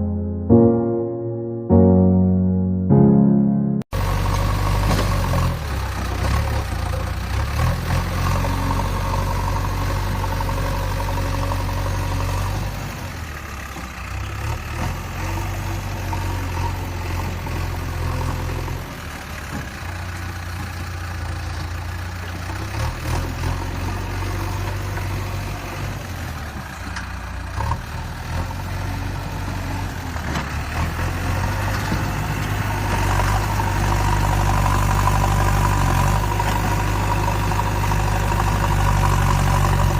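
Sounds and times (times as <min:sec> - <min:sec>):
engine idling: 0:16.2 - 0:22.7, 0:33.4 - 0:39.9.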